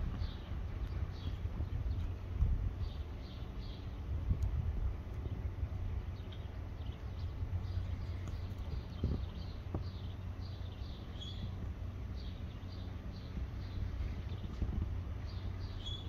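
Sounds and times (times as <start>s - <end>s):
wind rumble on microphone: 0.0s - 16.0s
small bird chirping: 6.1s - 16.0s.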